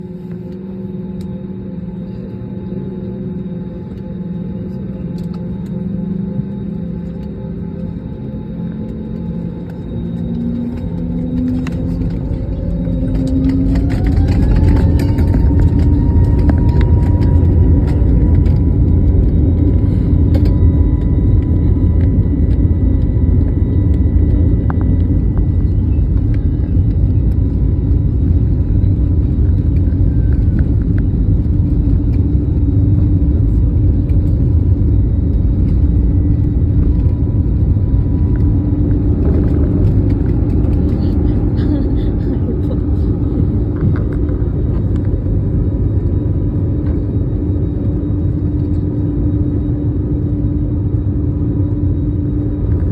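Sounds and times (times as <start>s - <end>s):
rising train whine: 0.0s - 52.9s
train rumble: 9.6s - 46.1s.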